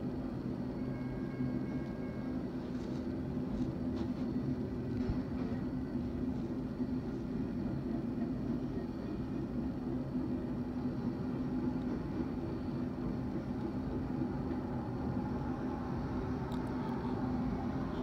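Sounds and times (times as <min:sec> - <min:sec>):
constant low hum: 0:00.0 - 0:18.0
distant train rumble: 0:00.0 - 0:18.0.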